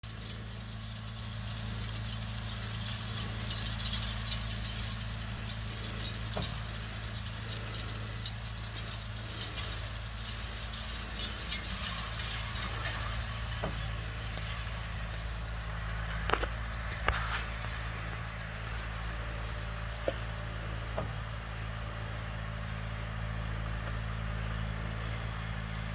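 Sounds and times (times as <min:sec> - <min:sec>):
tractor diesel engine running: 0:00.0 - 0:25.9
metallic rattling and clinking: 0:00.1 - 0:14.8.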